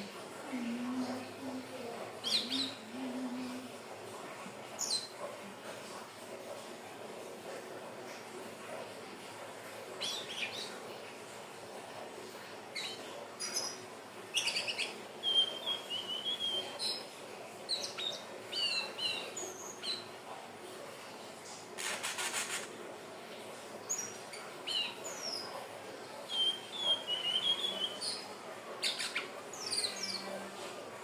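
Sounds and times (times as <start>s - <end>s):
bird singing whistles and chirps: 14.4s - 17.0s, 26.3s - 28.2s.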